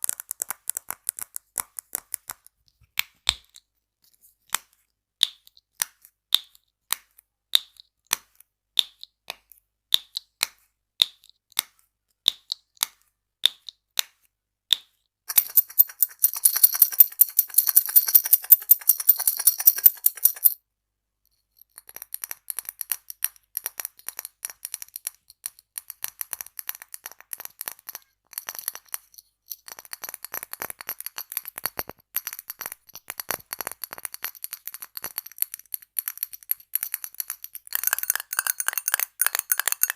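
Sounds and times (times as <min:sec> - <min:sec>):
tapping on small objects: 0:00.0 - 0:03.6, 0:04.5 - 0:20.6, 0:21.6 - 0:39.9
light clicking and clinking: 0:15.3 - 0:20.6, 0:21.6 - 0:39.9.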